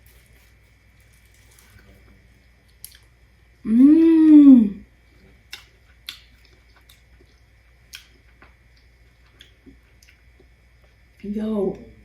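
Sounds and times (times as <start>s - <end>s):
person chewing food: 0.0s - 3.1s, 5.0s - 11.3s
wet mouth clicks and smacks: 5.5s - 8.2s.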